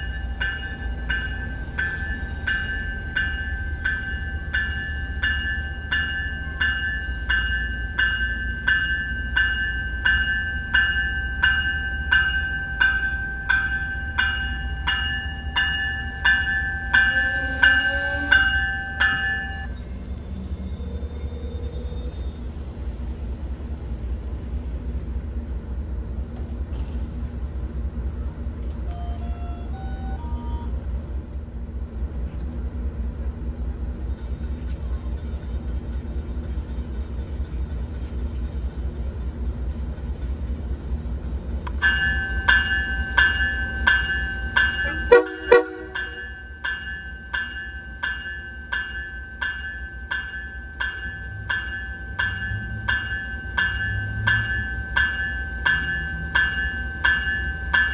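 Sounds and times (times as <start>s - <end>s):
train bell ringing: 0.0s - 24.0s, 39.0s - 57.9s
diesel locomotive rumbling: 0.0s - 57.9s
train horn toots: 16.9s - 18.9s, 28.9s - 30.8s, 44.9s - 46.3s.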